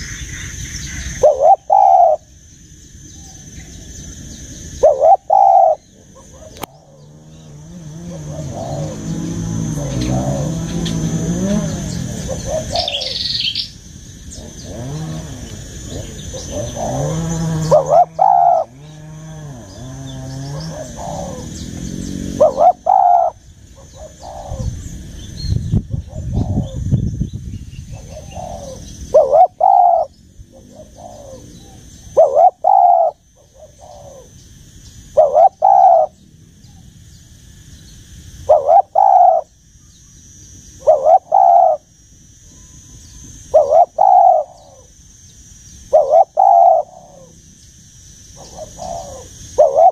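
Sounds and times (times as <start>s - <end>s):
dove cooing: 0.0s - 2.4s, 3.2s - 24.9s, 25.9s - 27.0s, 27.8s - 34.4s, 35.1s - 36.9s, 38.4s - 39.6s, 40.8s - 41.9s, 42.5s - 45.0s, 45.8s - 47.5s, 48.3s - 49.9s
faint high whine: 24.3s - 49.9s.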